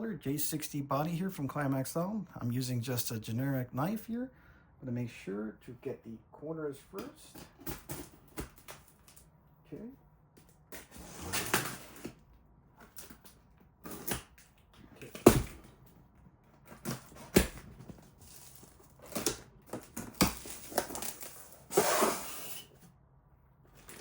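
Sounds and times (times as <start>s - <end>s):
cardboard rustling: 16.5s - 22.5s
knife cutting box tape: 18.4s - 22.8s.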